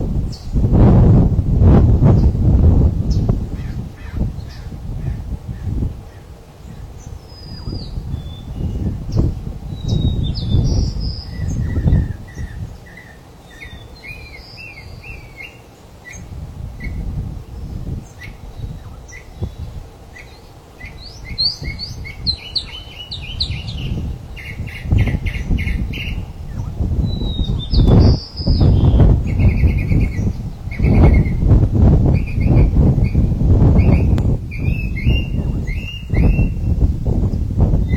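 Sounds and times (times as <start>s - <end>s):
small birds chirping and whistling: 0.2s - 0.6s, 2.1s - 2.4s, 3.0s - 37.9s.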